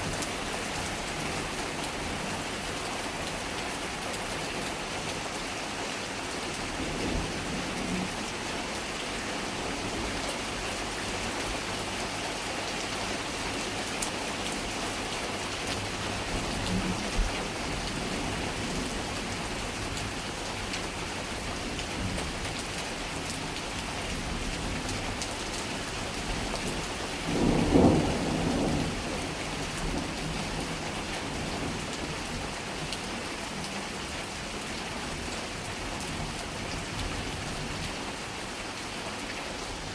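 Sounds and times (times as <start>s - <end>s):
heavy rain: 0.0s - 39.9s
thunder rumble: 27.2s - 30.5s.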